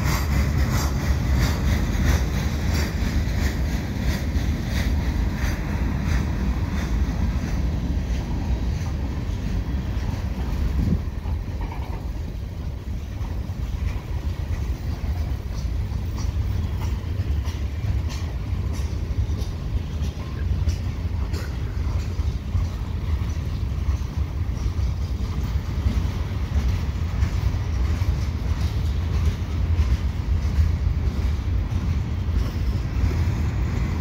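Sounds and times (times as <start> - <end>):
freight train rumbling: 0.0 - 34.0
wheels clicking over rail: 0.0 - 34.0.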